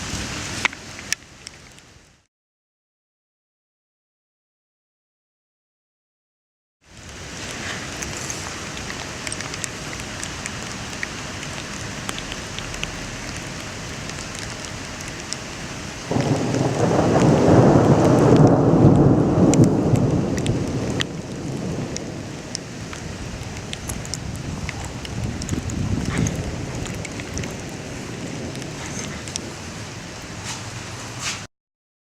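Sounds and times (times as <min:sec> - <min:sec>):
steady rain falling: 0:00.0 - 0:02.3, 0:06.8 - 0:31.5
water drips: 0:06.9 - 0:30.5
thunder rumbling: 0:10.6 - 0:31.2.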